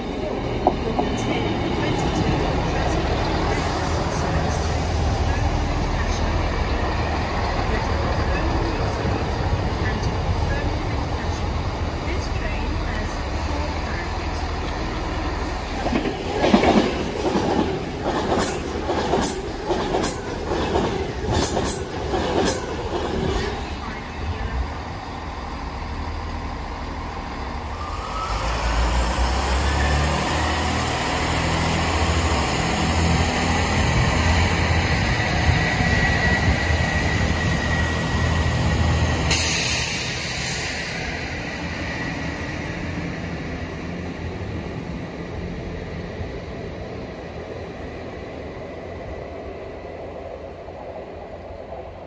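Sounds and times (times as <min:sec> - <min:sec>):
train engines rumbling: 0:00.0 - 0:52.0
rising engine whine: 0:25.0 - 0:39.3.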